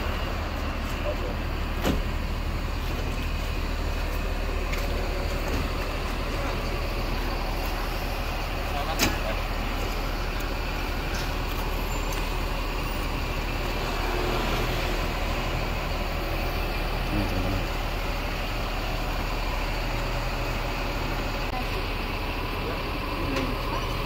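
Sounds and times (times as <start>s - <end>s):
bus engine running: 0.0s - 24.0s.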